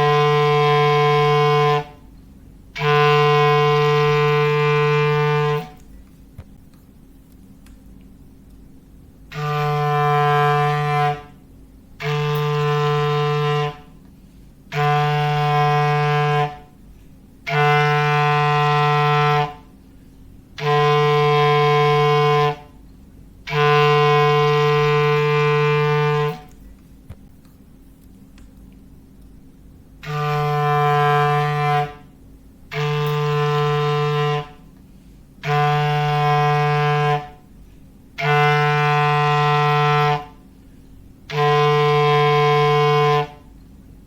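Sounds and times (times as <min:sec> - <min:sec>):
foghorn blasts: 0:00.0 - 0:06.0, 0:09.2 - 0:26.6, 0:30.0 - 0:43.6.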